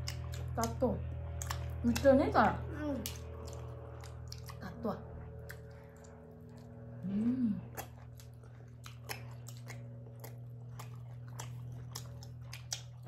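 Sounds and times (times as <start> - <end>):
people chewing with wet smacking: 0.0 - 13.0
person humming mm: 7.0 - 7.8.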